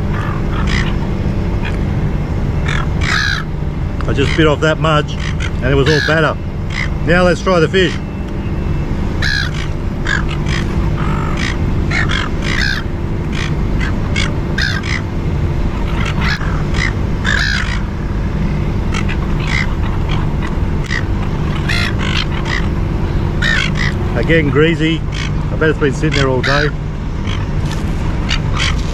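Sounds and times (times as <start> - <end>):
gulls squawking: 0.0 - 28.9
low background hum: 0.0 - 28.9.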